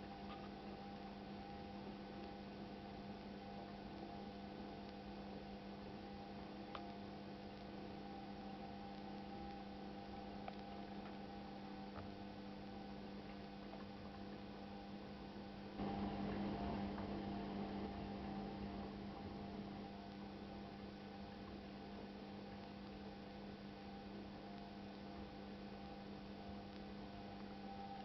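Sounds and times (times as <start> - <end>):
washing machine humming: 10.0 - 23.2.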